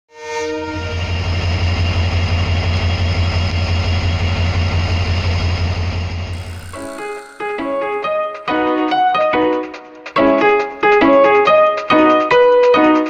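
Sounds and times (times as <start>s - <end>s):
diesel locomotive engine droning: 0.5s - 7.4s.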